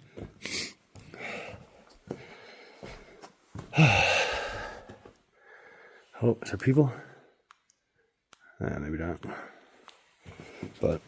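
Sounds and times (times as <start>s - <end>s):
man breathing: 0.0s - 6.2s, 9.2s - 10.8s.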